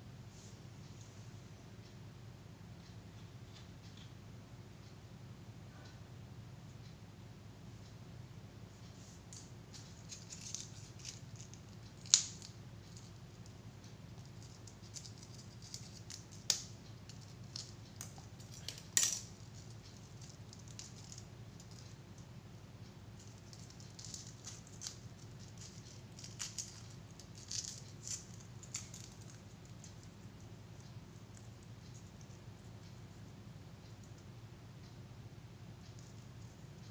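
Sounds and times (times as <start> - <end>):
faint steady hum: 0.0 - 36.9
small tools clicking and tapping: 9.3 - 13.6, 14.2 - 22.0, 23.2 - 32.4.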